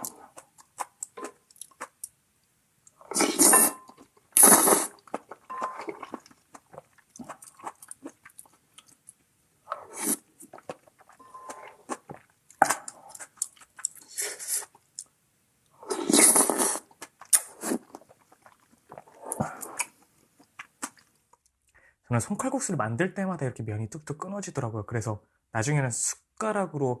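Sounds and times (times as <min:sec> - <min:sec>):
person chewing food: 0:00.0 - 0:02.2, 0:02.9 - 0:15.1, 0:15.8 - 0:21.2.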